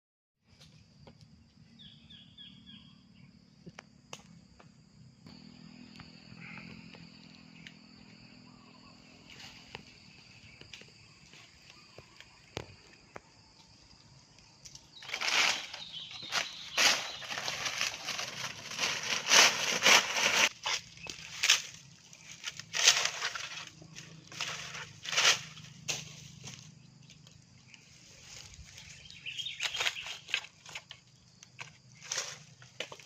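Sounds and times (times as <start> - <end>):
bird calls: 1.7 - 3.3, 5.8 - 13.3, 14.8 - 18.4, 26.4 - 31.3.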